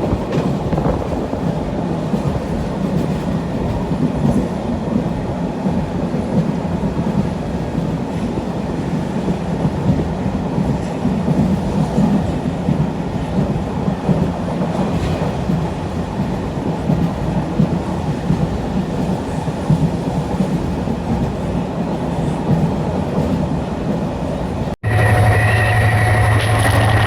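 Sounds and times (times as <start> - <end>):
train carriages rumbling and rattling: 0.0 - 27.0
engine hum with high tone: 24.8 - 27.0.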